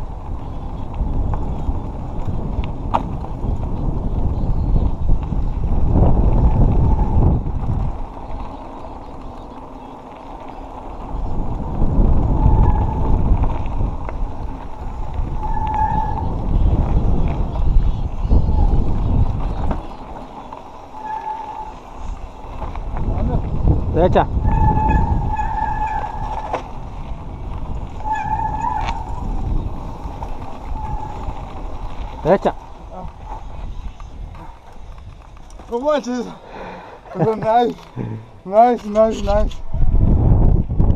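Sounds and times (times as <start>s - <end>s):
wind rushing over microphone: 0.0s - 36.4s, 37.0s - 40.9s
bike tyres and frame rattling: 0.0s - 40.9s
short high squeaks: 21.0s - 21.8s.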